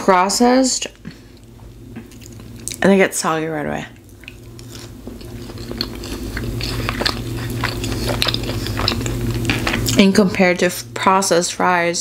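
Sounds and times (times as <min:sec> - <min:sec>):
low steady hum: 0:00.0 - 0:12.0
chewing fries: 0:01.0 - 0:02.8, 0:03.9 - 0:11.0.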